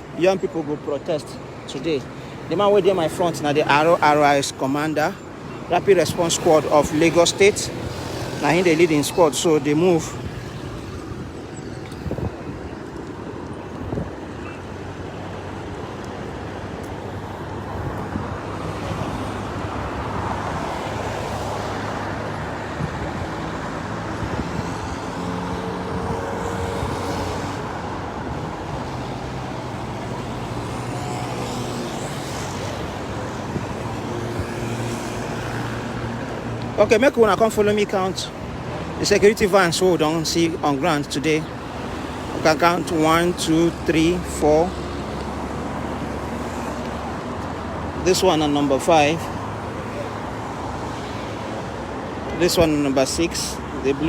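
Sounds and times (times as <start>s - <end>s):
road traffic noise: 0.0s - 54.0s
vehicles passing: 0.0s - 54.0s.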